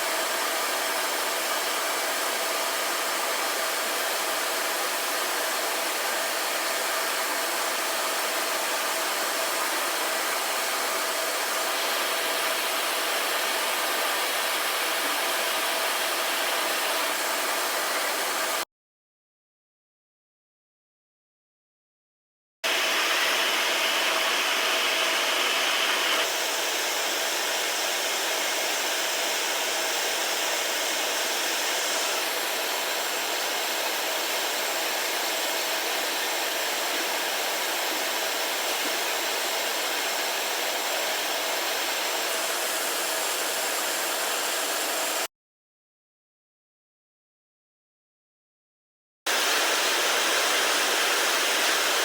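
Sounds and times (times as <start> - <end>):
air hiss: 49.3 - 52.0.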